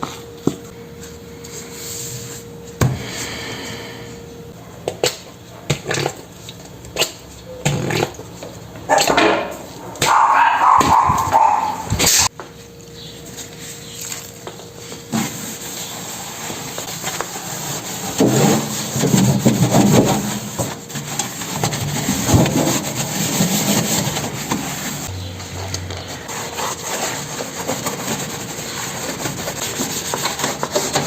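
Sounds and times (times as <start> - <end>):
scrubbing a microwave: 13.0 - 25.1, 26.0 - 31.0.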